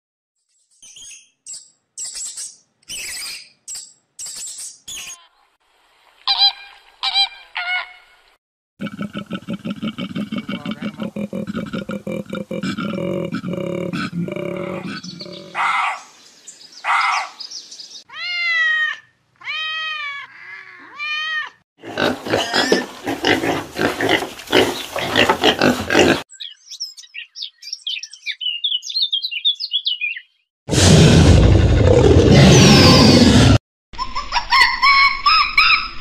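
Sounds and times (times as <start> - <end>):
piglets grunting and squealing: 8.8 - 15.8, 18.2 - 26.2
loud roar: 30.7 - 33.6.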